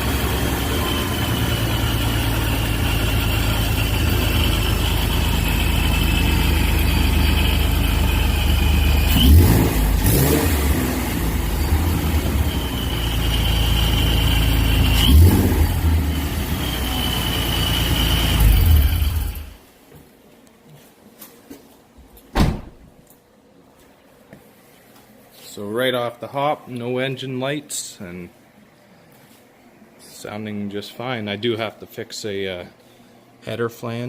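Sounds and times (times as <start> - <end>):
car engine idling and revving: 0.0 - 19.6
supercharger whine: 0.0 - 19.6.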